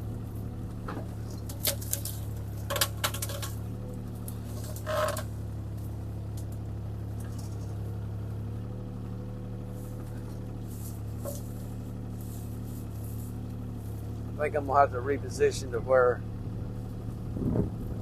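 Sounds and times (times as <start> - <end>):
diesel engine running: 0.0 - 18.0
short clatter: 7.2 - 7.8.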